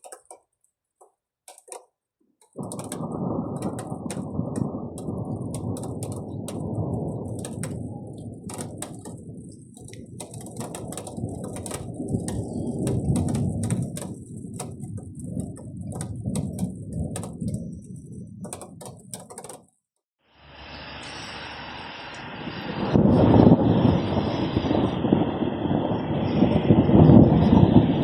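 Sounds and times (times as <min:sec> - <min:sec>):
sharp ticks: 0:00.0 - 0:00.4, 0:01.5 - 0:19.8
thunder rumbling: 0:02.6 - 0:19.2, 0:22.8 - 0:28.0.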